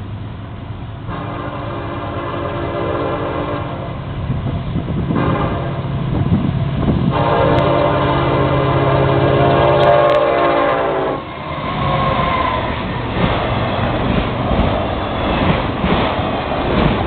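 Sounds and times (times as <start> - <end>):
diesel locomotive engines rumbling: 0.0 - 17.0
train horn blasts: 1.1 - 4.1, 5.1 - 6.0, 7.1 - 12.6.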